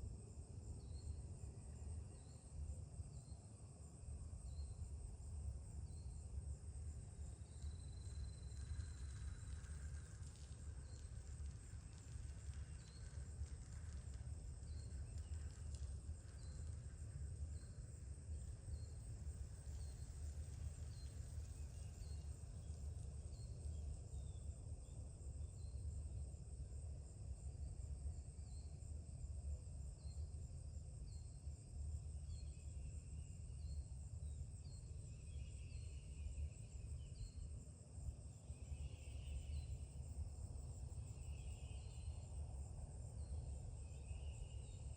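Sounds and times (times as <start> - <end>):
high insect drone: 32.3 - 44.9.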